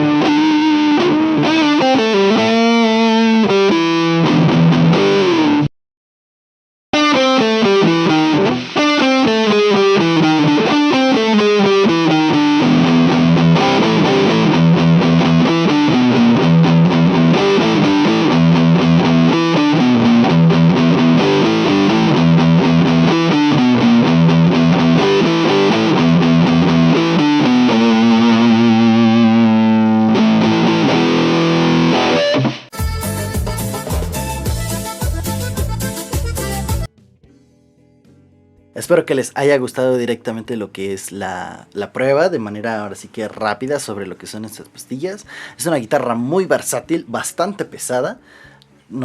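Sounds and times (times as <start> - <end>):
distorted electric guitar riffs: 0.0 - 5.7, 7.0 - 37.0.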